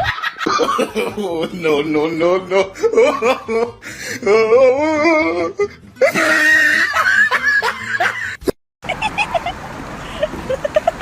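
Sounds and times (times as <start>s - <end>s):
high-pitched human laughter: 2.5s - 9.6s, 10.2s - 11.0s.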